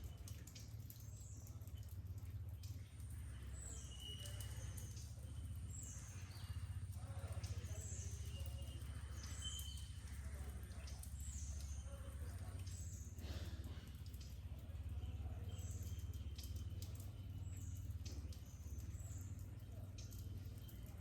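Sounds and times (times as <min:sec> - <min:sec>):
bird chirping: 0:00.0 - 0:13.2.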